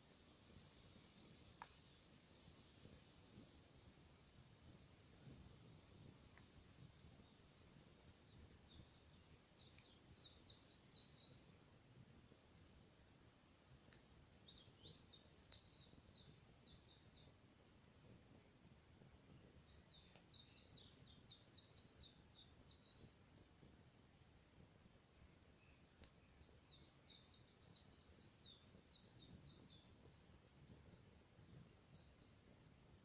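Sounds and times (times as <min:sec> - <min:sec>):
fire popping: 0:00.0 - 0:33.0
songbird twittering: 0:14.1 - 0:17.3, 0:25.3 - 0:31.2.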